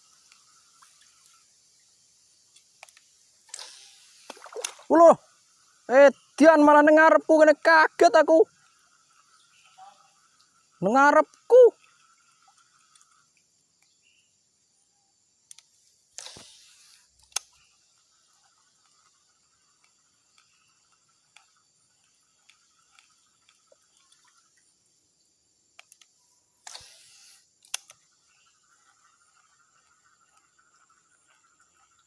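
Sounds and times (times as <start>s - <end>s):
faint insect drone: 0.0s - 32.0s
reel clicking: 25.8s - 28.1s.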